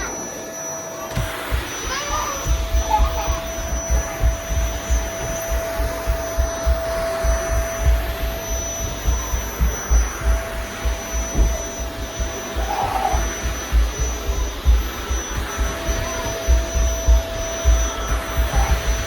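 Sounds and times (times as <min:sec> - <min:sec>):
vacuum cleaner running: 0:00.0 - 0:19.0
vacuum cleaner low thuds: 0:00.8 - 0:19.0.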